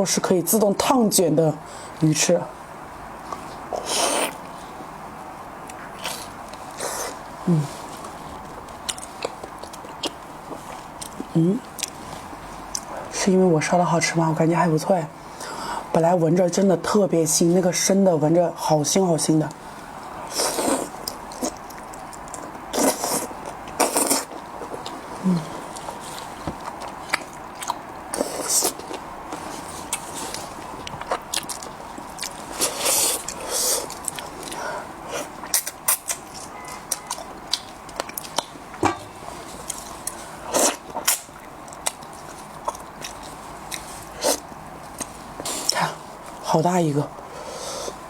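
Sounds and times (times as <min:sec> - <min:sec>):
wet chewing with mouth clicks: 0:05.6 - 0:12.0, 0:20.3 - 0:38.6, 0:39.5 - 0:46.5.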